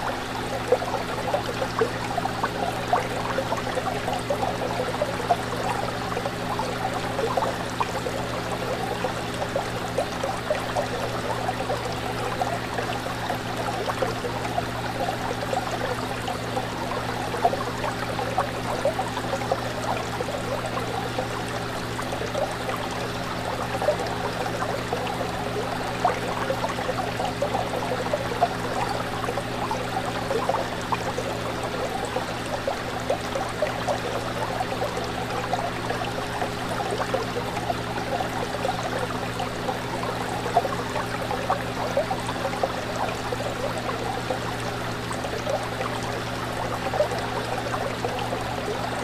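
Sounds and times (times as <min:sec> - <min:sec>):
fish tank water bubbling: 0:00.0 - 0:49.0.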